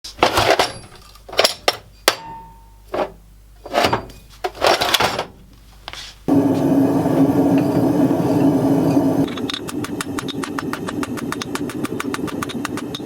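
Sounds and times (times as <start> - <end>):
hammer striking steel: 2.0 - 2.8.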